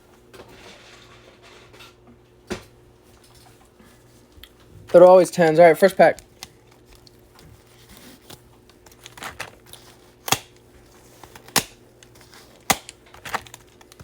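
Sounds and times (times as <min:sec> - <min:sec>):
foil wrapper tearing and crackling: 0:06.2 - 0:14.0.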